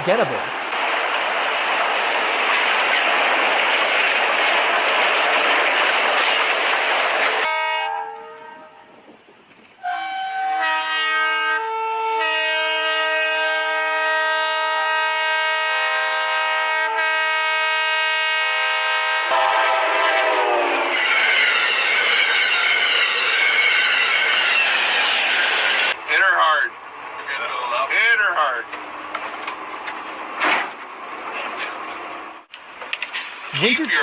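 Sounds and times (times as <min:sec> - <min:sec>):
train rushing past: 0:00.0 - 0:11.6, 0:12.3 - 0:34.0
locomotive air horn: 0:07.4 - 0:09.0, 0:09.8 - 0:21.5.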